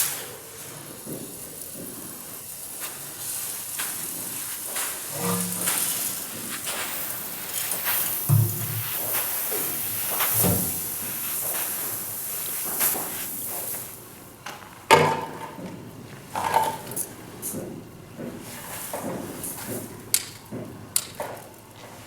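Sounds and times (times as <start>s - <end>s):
steady high hiss: 0.0s - 14.4s
fan parts knocking and clattering: 0.9s - 12.0s, 12.6s - 21.6s.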